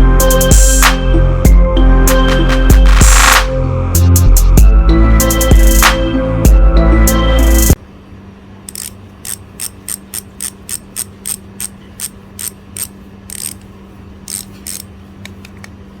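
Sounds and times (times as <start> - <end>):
bicycle hub ratchet clicking: 8.7 - 13.7, 14.3 - 14.9.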